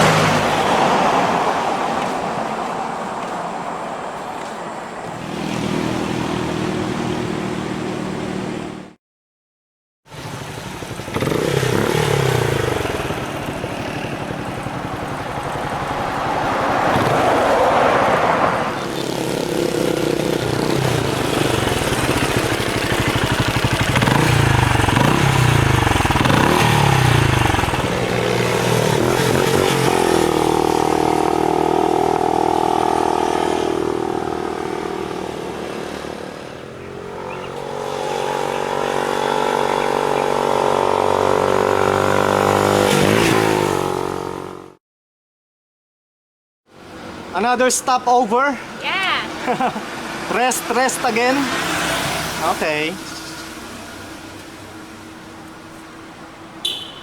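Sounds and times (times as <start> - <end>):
motorcycle engine running: 10.1 - 17.2, 18.7 - 42.8.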